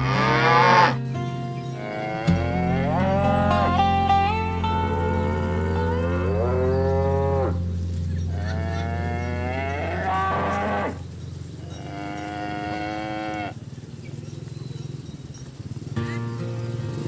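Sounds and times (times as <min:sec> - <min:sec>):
cows mooing: 0:00.0 - 0:13.6.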